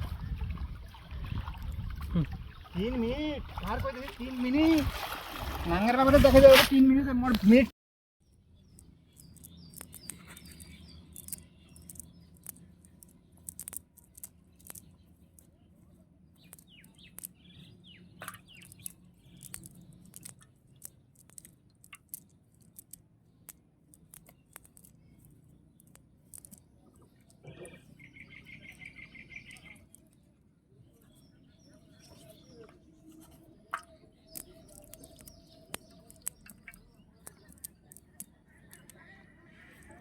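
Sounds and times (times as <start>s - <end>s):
small birds chirping: 8.2s - 40.0s.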